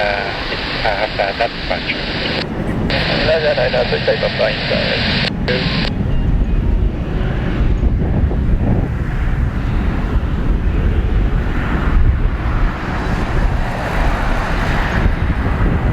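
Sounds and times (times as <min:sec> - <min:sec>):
jet engines roaring at takeoff: 0:00.0 - 0:15.9
wind buffeting microphone: 0:00.0 - 0:15.9.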